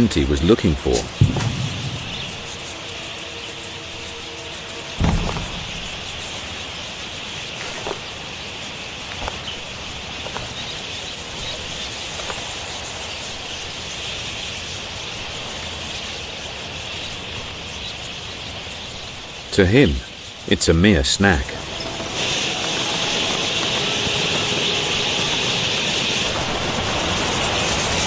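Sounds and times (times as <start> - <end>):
low thump: 1.1 - 2.6, 5.0 - 6.1
high-pitched insect drone: 1.3 - 8.1, 21.5 - 27.7.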